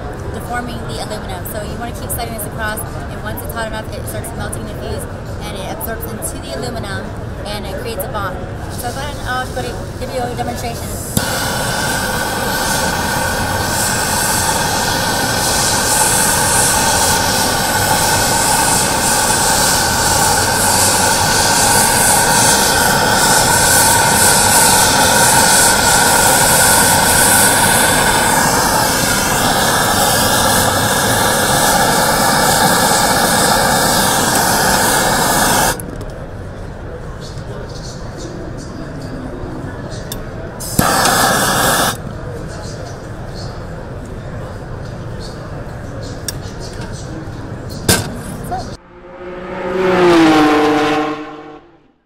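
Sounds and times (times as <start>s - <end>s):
gas torch flame rushing: 8.7s - 35.9s, 40.6s - 42.0s.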